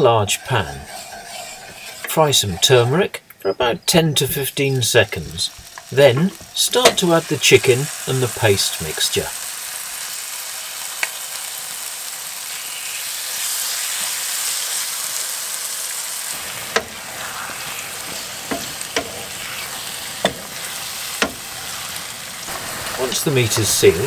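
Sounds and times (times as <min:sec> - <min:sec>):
meat sizzling in hot oil: 0:00.2 - 0:02.9, 0:04.2 - 0:24.0
utensil knocking against pan: 0:18.5 - 0:19.2, 0:21.2 - 0:21.4.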